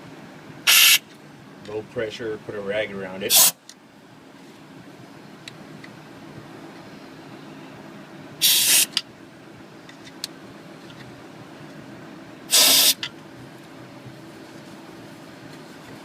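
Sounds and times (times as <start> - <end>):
steady low hum: 0.0 - 16.0
compressed air blasts: 0.6 - 1.0, 3.3 - 3.6, 8.4 - 9.0, 12.5 - 13.1.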